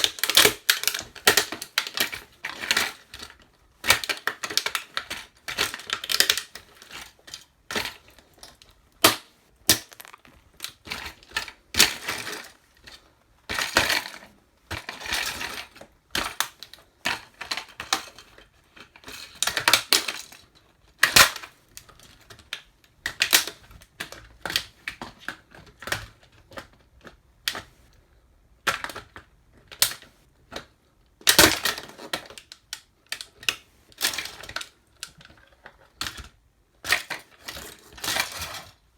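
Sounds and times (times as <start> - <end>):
toy truck crunching under boots: 9.7 - 10.6.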